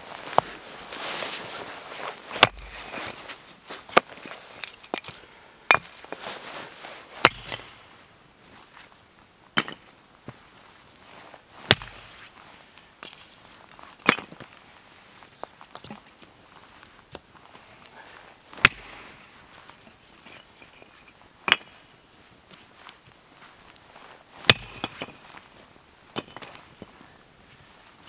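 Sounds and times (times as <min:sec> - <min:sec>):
firewood being chopped: 0:02.3 - 0:03.1, 0:03.9 - 0:06.1, 0:07.2 - 0:07.8, 0:09.6 - 0:09.9, 0:11.7 - 0:12.1, 0:14.0 - 0:14.4, 0:18.6 - 0:19.0, 0:21.4 - 0:21.8, 0:24.4 - 0:25.2.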